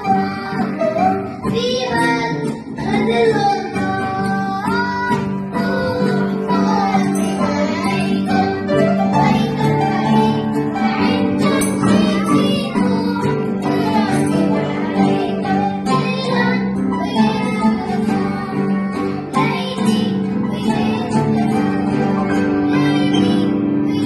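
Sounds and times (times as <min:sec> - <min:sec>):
plucked acoustic guitar: 0:00.0 - 0:24.0
voices singing a hymn: 0:05.5 - 0:24.0.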